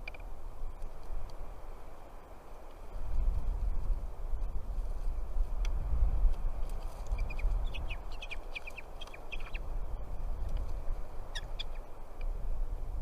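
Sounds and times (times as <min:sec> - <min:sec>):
steady low rumble: 0:00.0 - 0:13.0
birds chirping: 0:07.1 - 0:10.0, 0:11.1 - 0:12.3.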